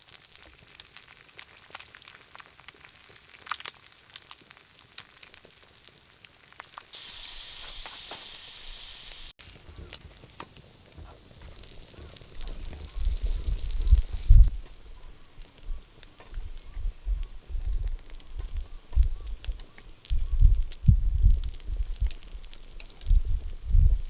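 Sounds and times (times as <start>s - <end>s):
food frying with pops and crackles: 0.0s - 24.0s
loud steady sizzle: 0.0s - 24.0s.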